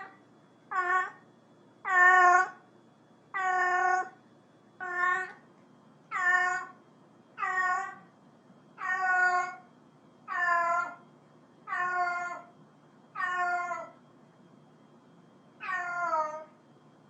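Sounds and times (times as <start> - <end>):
cat meowing: 0.7 - 1.2, 1.8 - 2.6, 3.4 - 4.2, 4.8 - 5.4, 6.1 - 6.8, 7.4 - 8.0, 8.8 - 9.6, 10.3 - 11.0, 11.7 - 12.5, 13.2 - 14.0, 15.6 - 16.5.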